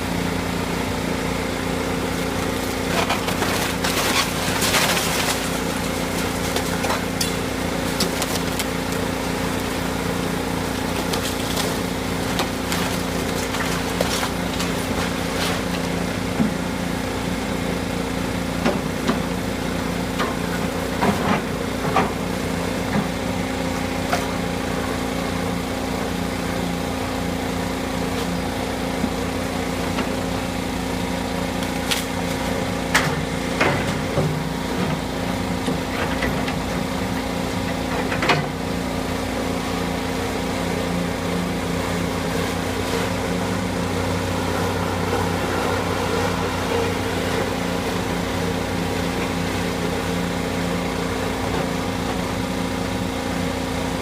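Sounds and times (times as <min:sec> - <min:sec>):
demolition machinery engine hum: 0:00.0 - 0:54.0
debris knocks and clanks: 0:02.9 - 0:07.4.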